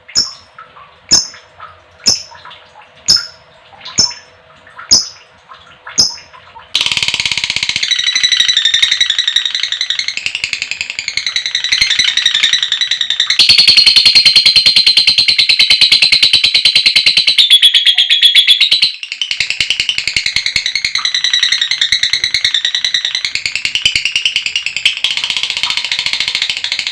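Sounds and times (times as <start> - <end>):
lovebird chirping and chattering: 0.1 - 0.5, 1.1 - 1.4, 2.0 - 2.4, 3.1 - 3.4, 4.0 - 4.3, 4.9 - 5.2, 6.0 - 6.2, 6.8 - 26.9.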